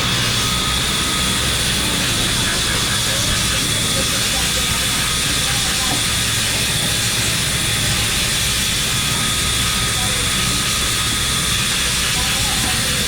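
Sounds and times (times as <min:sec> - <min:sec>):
machinery high whine: 0:00.0 - 0:13.0.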